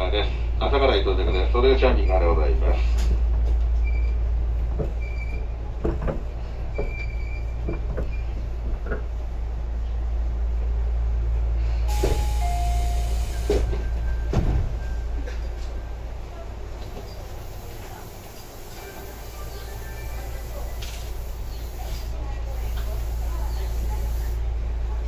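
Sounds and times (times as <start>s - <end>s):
train rumbling: 0.0s - 25.0s
wheel clacks over rail joints: 4.6s - 9.2s
air hiss: 11.9s - 13.7s, 17.3s - 24.4s.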